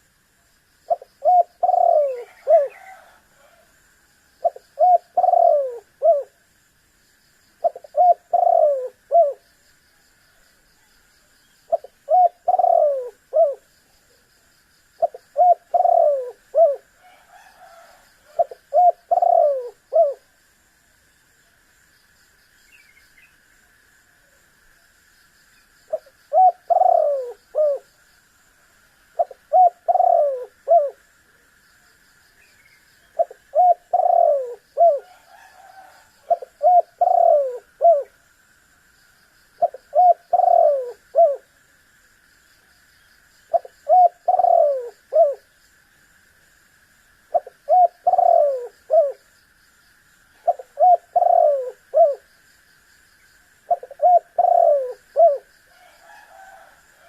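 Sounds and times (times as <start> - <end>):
high insect drone: 0.0 - 57.0
dove cooing: 0.9 - 3.7, 4.4 - 6.4, 7.6 - 9.4, 11.7 - 13.7, 15.0 - 20.3, 25.9 - 27.9, 29.2 - 31.0, 33.2 - 38.2, 39.6 - 41.5, 43.5 - 45.5, 47.3 - 49.2, 50.4 - 52.3, 53.7 - 57.0.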